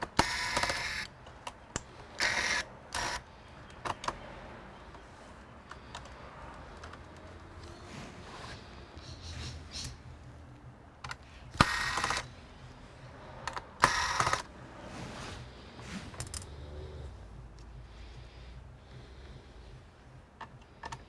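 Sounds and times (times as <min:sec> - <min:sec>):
small plastic clicks: 0:00.0 - 0:04.3, 0:11.0 - 0:12.4.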